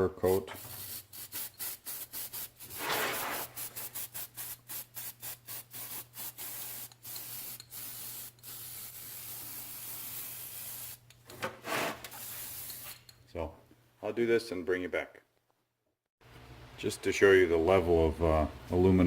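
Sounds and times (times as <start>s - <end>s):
aerosol can spraying: 0.4s - 11.0s, 11.7s - 13.0s.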